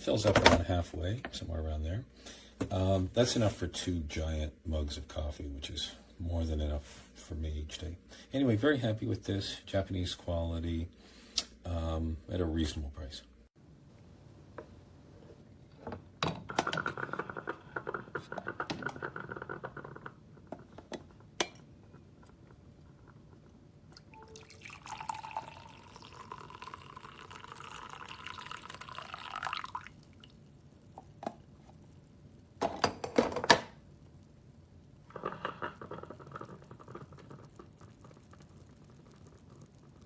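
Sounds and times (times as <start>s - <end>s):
water being poured: 24.0s - 30.5s.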